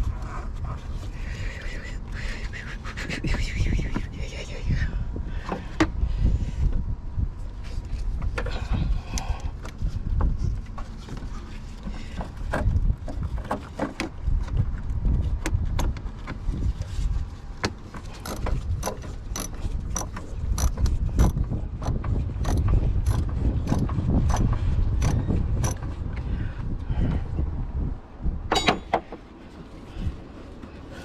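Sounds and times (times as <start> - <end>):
hand tool clicks and knocks: 17.6 - 25.9, 28.5 - 29.2.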